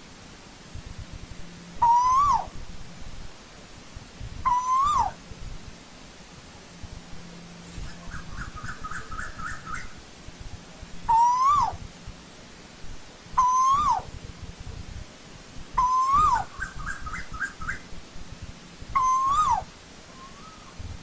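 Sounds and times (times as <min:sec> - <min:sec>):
bird calling two-part notes: 0:01.8 - 0:02.5, 0:04.5 - 0:05.2, 0:11.1 - 0:11.8, 0:13.4 - 0:14.1, 0:15.8 - 0:17.8, 0:19.0 - 0:20.8.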